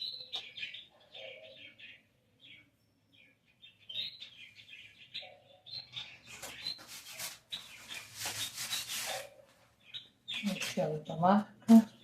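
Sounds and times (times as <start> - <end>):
small birds chirping: 0.0 - 12.0
scrubbing or wiping strokes: 6.7 - 9.4.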